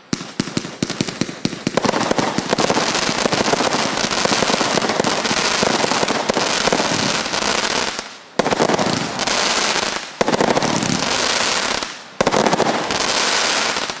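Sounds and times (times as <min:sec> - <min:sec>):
firework crackling: 0:00.0 - 0:14.0.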